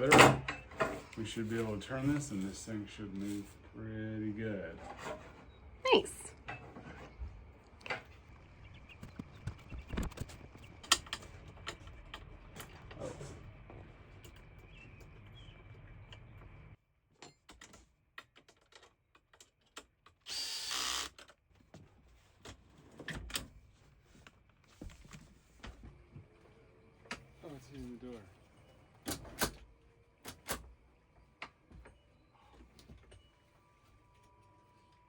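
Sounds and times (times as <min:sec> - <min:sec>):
power drill running: 0:20.3 - 0:21.1.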